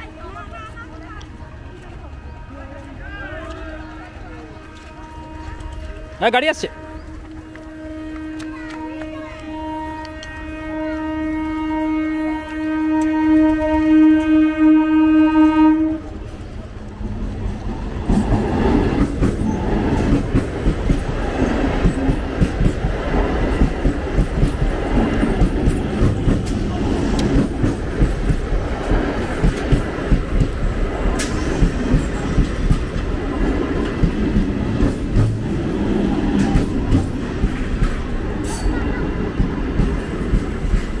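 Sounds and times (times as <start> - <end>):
train coaches rumbling: 0.0 - 41.0
train wheels clattering over rails: 16.2 - 41.0.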